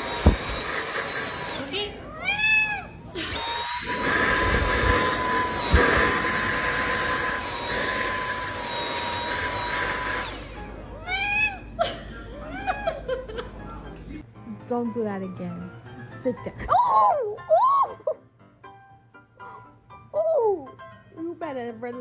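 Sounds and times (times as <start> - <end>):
appliance motor whining: 0.0 - 13.9
thump: 0.2 - 0.7
cat meowing: 2.1 - 3.0, 11.0 - 11.7.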